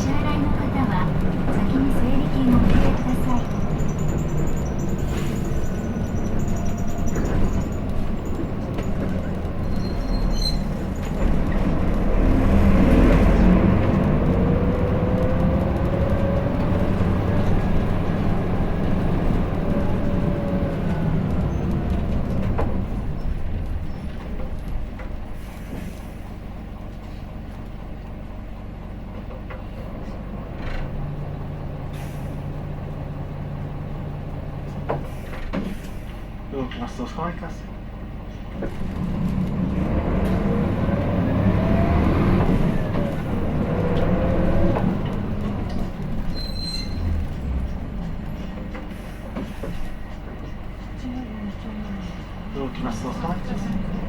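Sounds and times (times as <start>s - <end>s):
bus engine whining: 0.0s - 54.0s
air brakes hissing: 3.8s - 7.8s, 25.2s - 27.3s, 31.9s - 32.6s, 34.9s - 36.4s, 48.8s - 50.2s.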